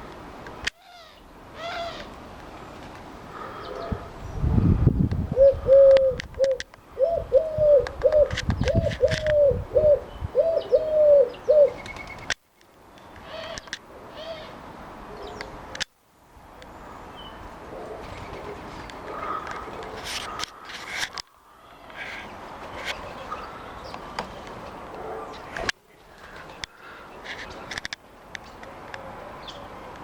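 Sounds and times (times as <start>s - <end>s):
dove cooing: 5.3s - 11.8s, 17.8s - 20.7s.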